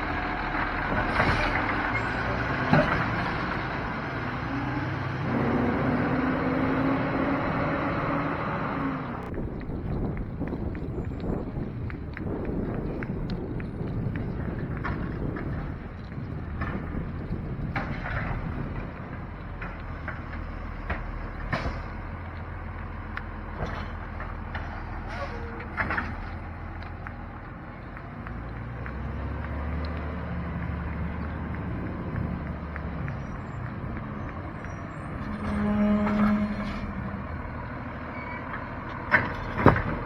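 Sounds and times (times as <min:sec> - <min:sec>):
heavy truck engine running: 0:00.0 - 0:40.0.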